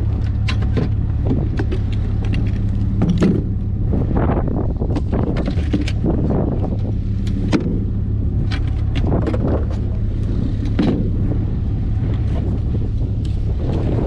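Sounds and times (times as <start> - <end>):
low rumble: 0.0 - 14.0
sharp knocks and clicks: 0.1 - 3.5.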